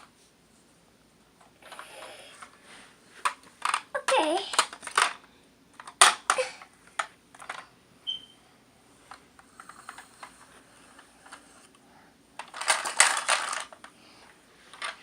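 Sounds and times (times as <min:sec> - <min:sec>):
plastic toy clatter: 0:03.2 - 0:05.2, 0:05.8 - 0:07.7, 0:09.1 - 0:11.5, 0:12.4 - 0:13.9, 0:14.7 - 0:15.0
plastic toy clicks and knocks: 0:03.2 - 0:05.2, 0:05.8 - 0:07.7, 0:12.4 - 0:13.8.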